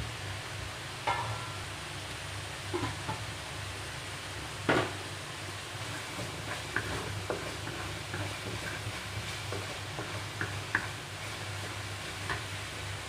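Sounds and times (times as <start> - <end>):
paste sizzling in oil: 1.1 - 13.0
spatula scraping a pan: 5.8 - 12.4.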